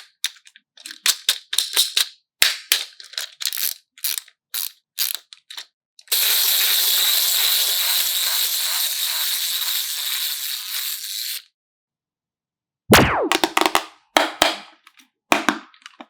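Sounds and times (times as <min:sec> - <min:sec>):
loud sharp crack: 0:12.9 - 0:13.8.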